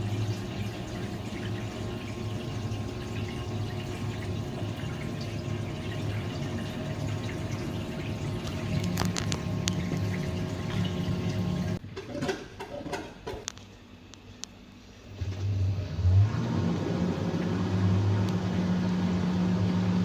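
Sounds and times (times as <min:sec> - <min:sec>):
washing machine motor humming: 0:00.0 - 0:13.4, 0:14.8 - 0:20.0.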